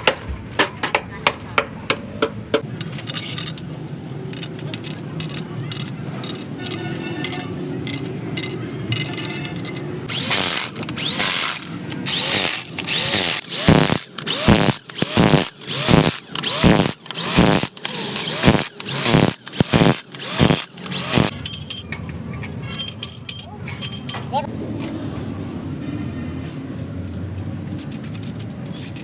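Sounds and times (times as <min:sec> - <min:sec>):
power tool grinding metal: 0:09.5 - 0:21.4.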